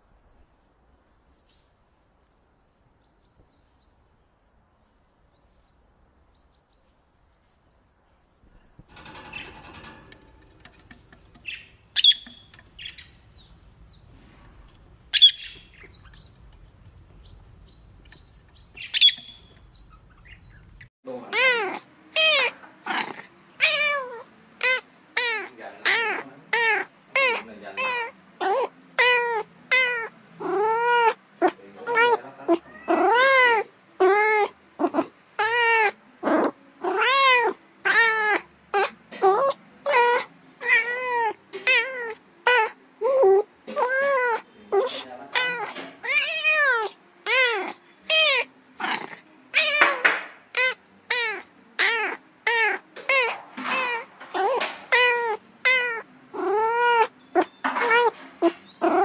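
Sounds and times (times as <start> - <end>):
cat meowing: 21.3 - 31.2, 31.9 - 59.0.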